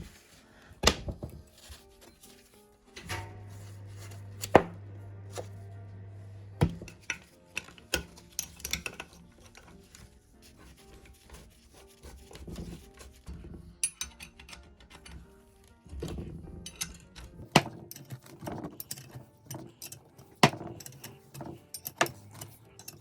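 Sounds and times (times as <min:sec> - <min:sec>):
low steady hum: 0:03.0 - 0:07.2
metal parts and tools clicking: 0:06.8 - 0:10.1, 0:12.3 - 0:23.0.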